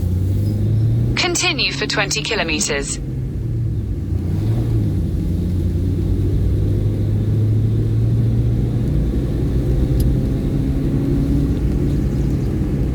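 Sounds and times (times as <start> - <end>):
car engine and road rumble: 0.0 - 1.6, 3.0 - 12.9.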